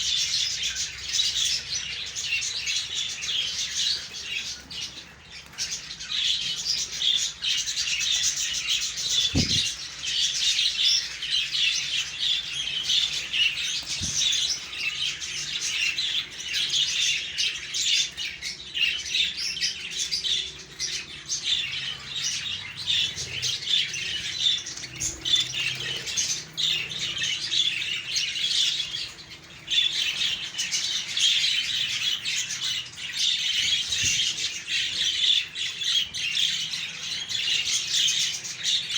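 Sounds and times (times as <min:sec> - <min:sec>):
budgerigars chattering and squawking: 0:00.0 - 0:38.9
low thump: 0:09.3 - 0:09.7.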